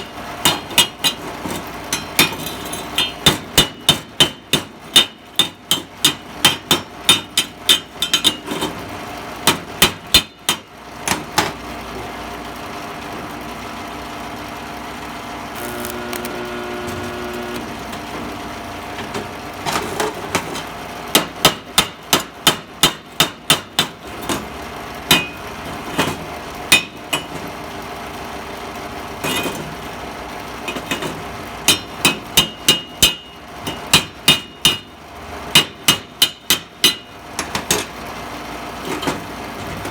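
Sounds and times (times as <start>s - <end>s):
hammer striking steel: 0.0s - 1.3s, 1.9s - 8.4s, 21.1s - 24.0s, 25.1s - 25.4s, 26.7s - 27.3s, 31.7s - 34.9s, 35.5s - 37.1s
steady hum: 15.4s - 18.9s.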